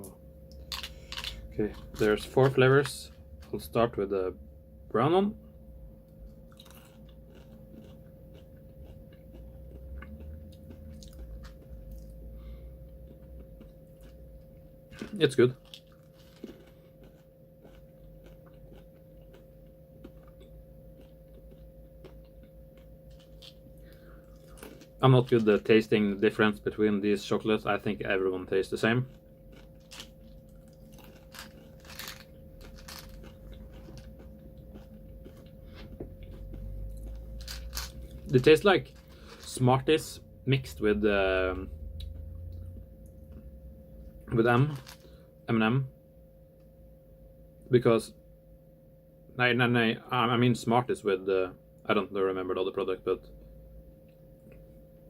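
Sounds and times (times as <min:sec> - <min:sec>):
person chewing crunchy candy: 0:00.5 - 0:03.6, 0:06.3 - 0:25.7, 0:28.9 - 0:39.6, 0:44.2 - 0:45.2.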